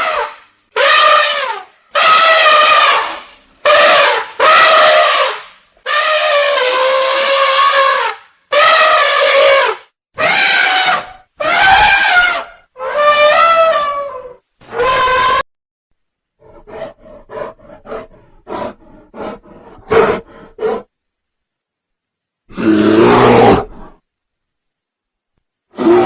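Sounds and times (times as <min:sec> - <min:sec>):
animal horn-like calls: 0:00.0 - 0:15.4, 0:16.4 - 0:20.9
animal grunts: 0:16.4 - 0:20.9.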